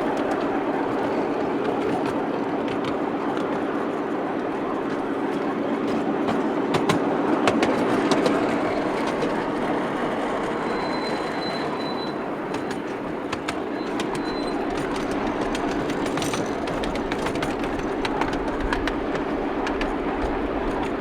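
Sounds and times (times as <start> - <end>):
miniature train rumbling: 0.0 - 21.0
wheels clicking over rail joints: 0.0 - 21.0
high wheel squeal: 8.5 - 16.8.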